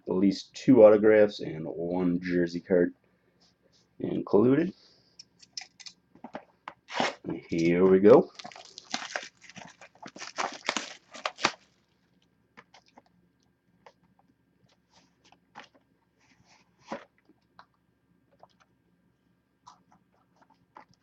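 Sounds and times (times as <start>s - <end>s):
packaging crinkling: 8.2s - 12.0s.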